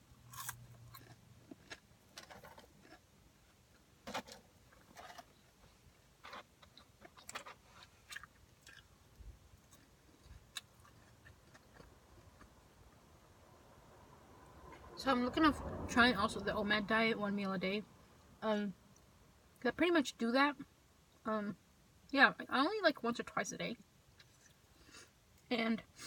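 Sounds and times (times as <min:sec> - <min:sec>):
person chewing crunchy food: 0:00.2 - 0:03.8, 0:06.2 - 0:12.9.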